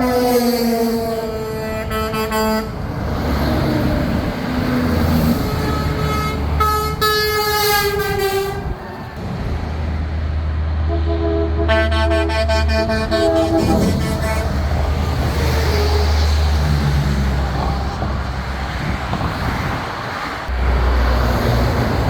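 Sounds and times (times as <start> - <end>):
truck air horn: 0.0 - 2.8, 5.3 - 9.0, 10.8 - 18.2
trucks driving past: 0.0 - 22.0
deep chord-like horn blasts: 10.8 - 15.0.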